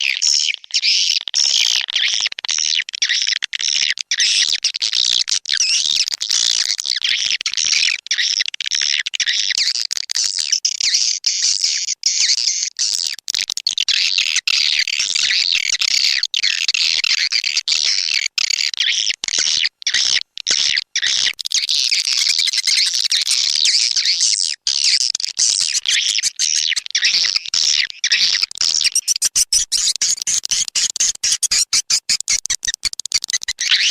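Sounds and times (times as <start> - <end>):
swiftlet calls twittering: 21.0 - 33.9.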